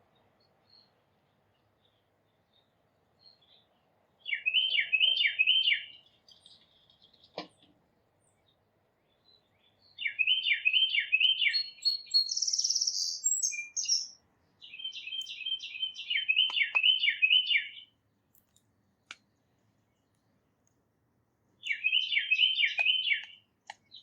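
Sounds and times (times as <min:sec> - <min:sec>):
songbird singing: 0:00.0 - 0:20.8, 0:21.5 - 0:24.0
buzzy bird trill: 0:10.3 - 0:17.8.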